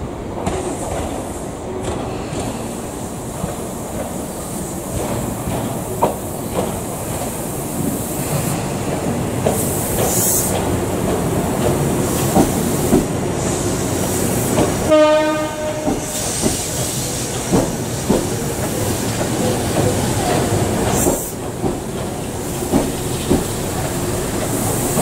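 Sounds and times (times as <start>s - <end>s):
electric train rolling past: 0.0s - 25.0s
train horn blast: 14.9s - 16.2s
wheels clacking over rail joints: 15.6s - 25.0s.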